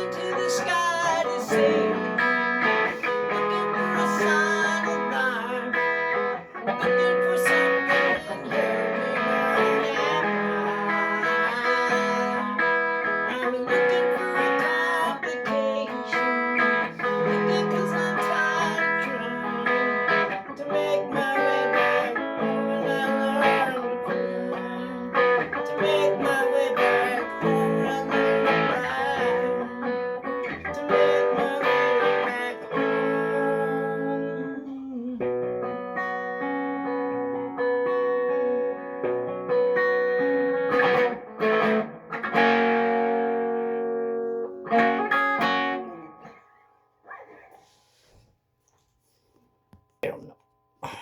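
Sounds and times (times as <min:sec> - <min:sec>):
guitar music: 0:00.0 - 0:48.1.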